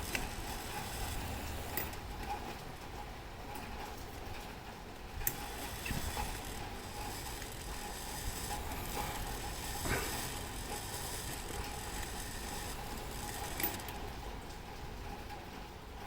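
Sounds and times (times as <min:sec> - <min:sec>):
metal clock parts clicking: 0:00.0 - 0:02.3, 0:05.2 - 0:14.1.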